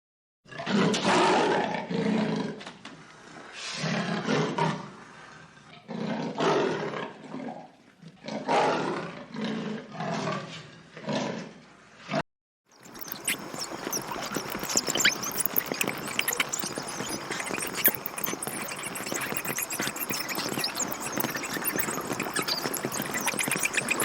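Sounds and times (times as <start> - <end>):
large animal roaring and growling: 8.2 - 11.4.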